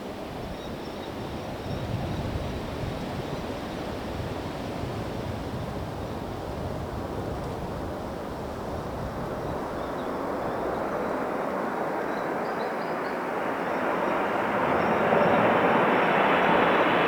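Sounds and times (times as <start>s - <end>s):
jet airliner engine rush: 0.0s - 17.0s.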